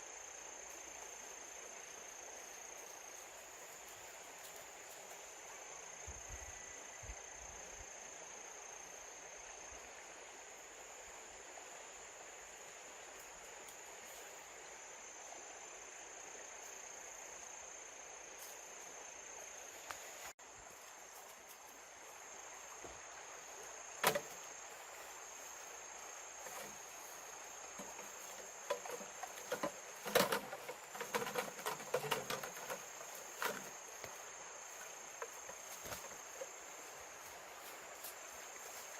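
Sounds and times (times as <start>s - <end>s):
insects trilling: 0.0s - 38.9s
irregular clicks and knocks: 27.7s - 33.7s.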